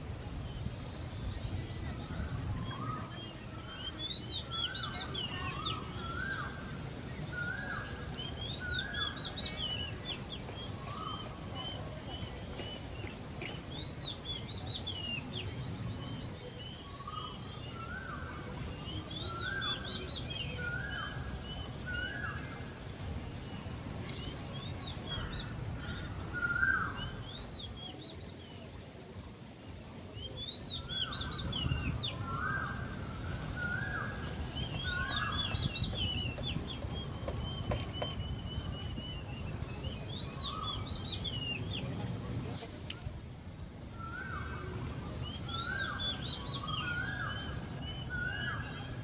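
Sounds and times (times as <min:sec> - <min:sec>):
birds chirping: 0:00.0 - 0:49.0.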